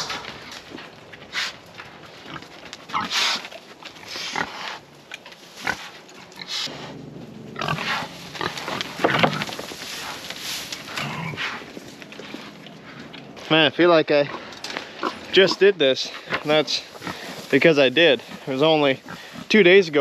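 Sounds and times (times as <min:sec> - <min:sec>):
pigs grunting: 0:00.0 - 0:20.0.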